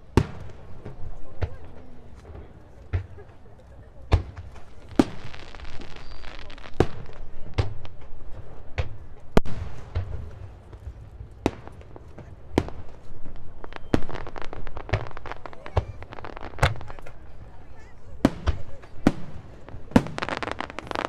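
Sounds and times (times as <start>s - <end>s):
firework crackling: 0.0s - 21.0s
firework shells bursting with bangs: 4.1s - 17.4s, 18.2s - 21.0s.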